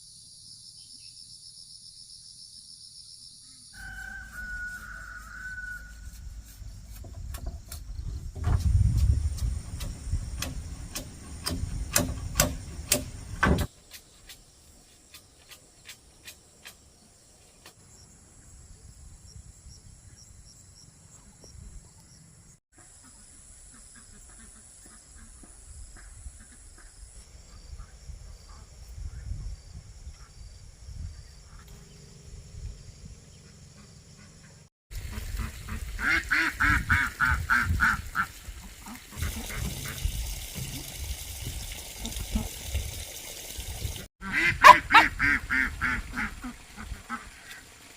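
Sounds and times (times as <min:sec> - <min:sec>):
sharp knocks: 0:08.4 - 0:13.7
ducks quacking: 0:33.8 - 0:40.0, 0:44.2 - 0:47.6.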